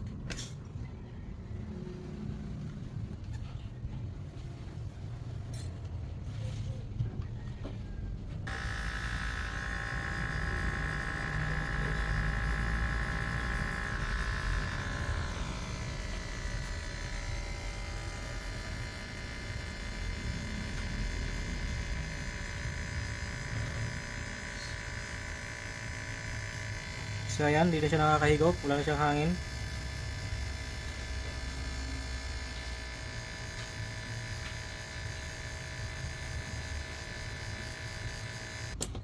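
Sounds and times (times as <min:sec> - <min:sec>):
water pump buzzing hum: 0:08.4 - 0:38.9.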